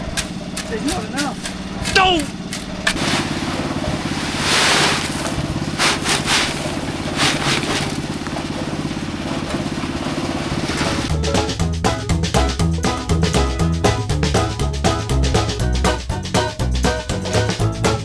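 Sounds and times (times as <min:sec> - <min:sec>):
small engine running: 0:00.0 - 0:14.5
gritty hissing bursts: 0:02.9 - 0:07.9.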